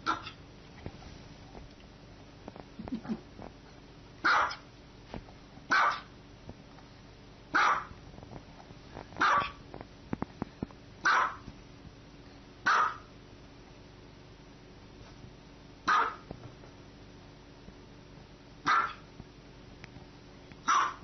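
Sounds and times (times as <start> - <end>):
small dog barking: 0.0 - 0.4, 4.2 - 4.6, 5.7 - 6.1, 7.5 - 8.0, 9.2 - 9.6, 11.0 - 11.5, 12.6 - 13.1, 15.8 - 16.3, 18.6 - 19.1, 20.6 - 21.0.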